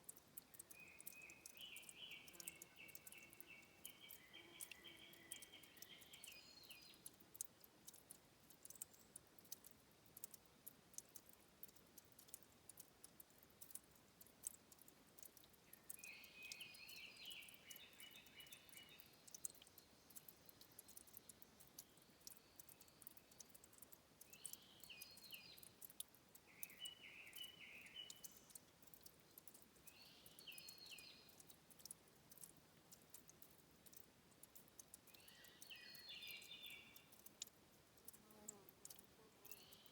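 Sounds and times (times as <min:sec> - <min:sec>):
dripping trickling water: 0:00.0 - 0:39.9
bird chirping: 0:00.4 - 0:09.3, 0:15.3 - 0:32.5, 0:33.9 - 0:37.4, 0:38.2 - 0:39.9.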